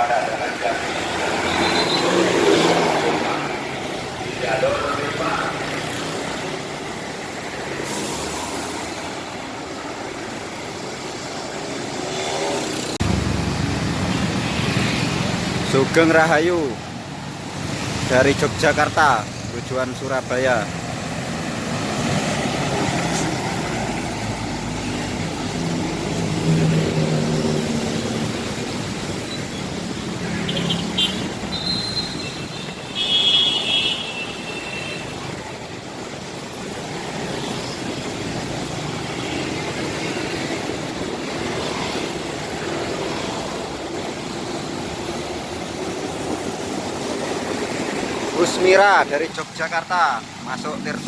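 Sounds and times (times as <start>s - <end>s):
bus diesel engine: 0.0s - 30.5s
traffic noise: 0.0s - 51.0s.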